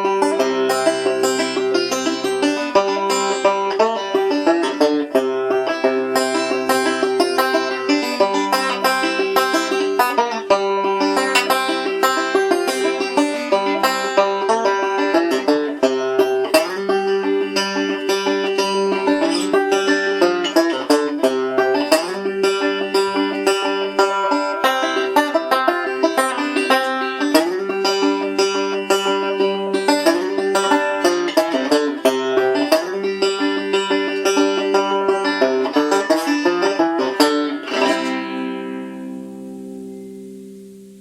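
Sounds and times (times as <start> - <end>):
banjo picking: 0.0 - 41.0.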